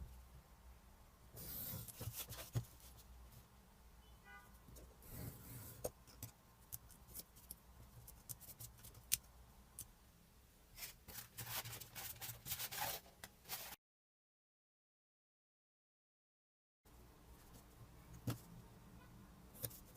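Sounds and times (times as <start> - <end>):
scraping and rubbing: 10.8 - 13.8.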